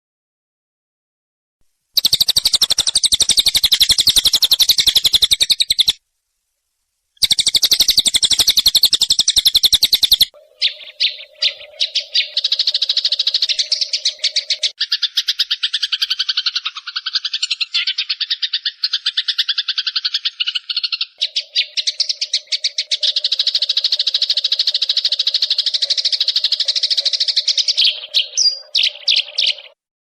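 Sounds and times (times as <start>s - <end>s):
pulsing bird call: 2.0s - 6.0s, 7.2s - 29.8s
sparrow rapid chirps: 2.0s - 6.0s, 7.2s - 29.8s
lower-pitched pulsing call: 7.2s - 14.8s, 21.2s - 29.8s.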